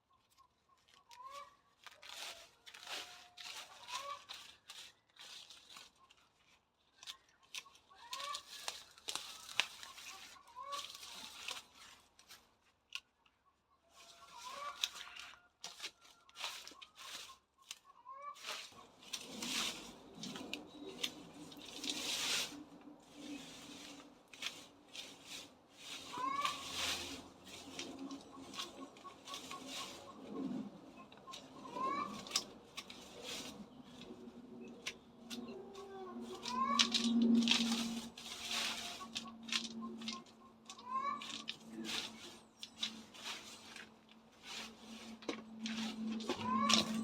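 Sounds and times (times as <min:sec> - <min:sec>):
plant stems tearing and rustling: 0:00.8 - 0:13.4, 0:14.0 - 0:47.0
plant stems snapping: 0:07.0 - 0:10.0, 0:32.0 - 0:35.5.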